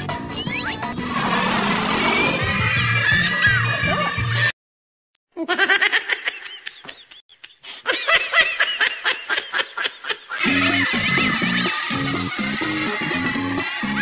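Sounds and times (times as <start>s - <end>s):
rapid high-pitched laughter: 5.4s - 13.2s
background music: 10.4s - 14.0s.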